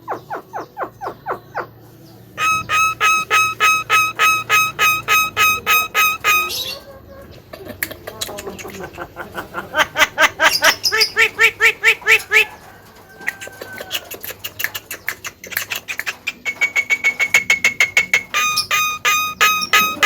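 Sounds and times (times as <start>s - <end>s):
bird calling harsh repeated notes: 2.4s - 6.8s, 10.0s - 12.4s, 15.9s - 20.0s.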